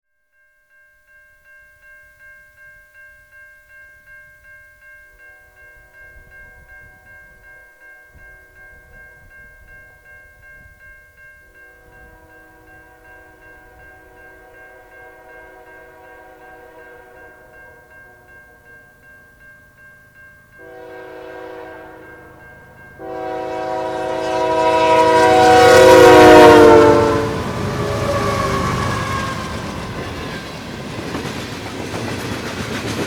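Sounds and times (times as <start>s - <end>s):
crossing bell dinging: 0.8s - 33.0s
low rumble of train: 11.6s - 18.7s, 19.7s - 33.0s
distant train horn: 11.7s - 18.3s, 20.6s - 31.2s.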